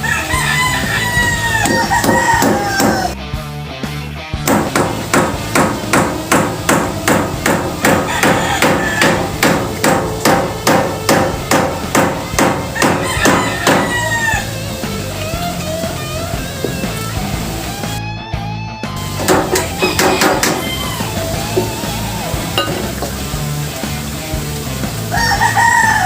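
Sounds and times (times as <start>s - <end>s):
hammer driving nails: 1.6s - 3.1s, 4.5s - 13.9s, 19.2s - 20.7s.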